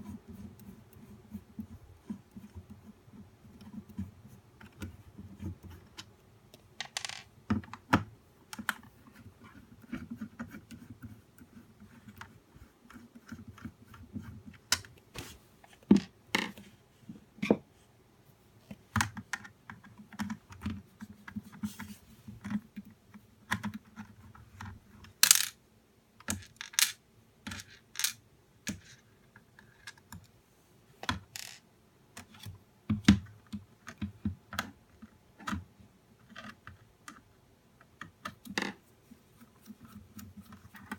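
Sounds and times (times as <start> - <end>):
plastic parts clicking and knocking: 5.8 - 8.8, 22.4 - 25.6, 26.2 - 30.3.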